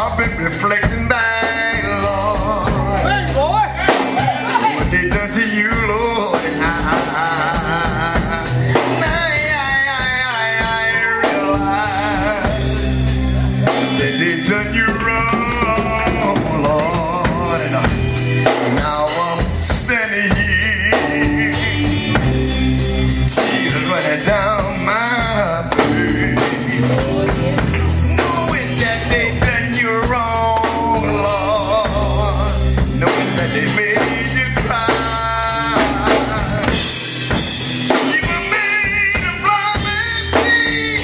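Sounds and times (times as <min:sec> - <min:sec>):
bass: 0:00.0 - 0:41.0
drums: 0:00.0 - 0:41.0
men singing gospel: 0:00.0 - 0:41.0.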